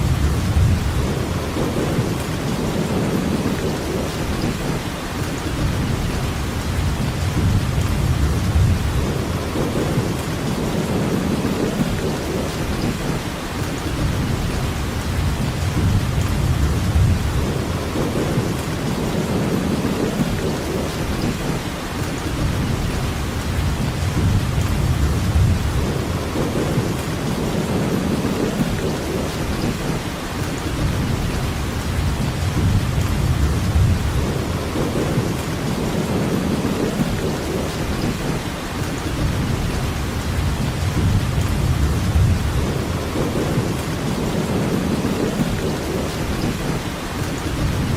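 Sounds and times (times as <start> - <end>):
low rumble: 0.0 - 2.8
heavy rainfall: 0.0 - 47.9.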